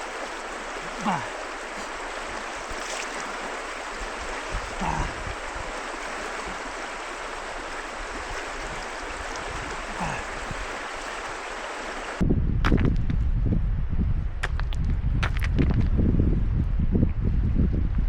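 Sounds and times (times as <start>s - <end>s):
river water flowing: 0.0s - 12.2s.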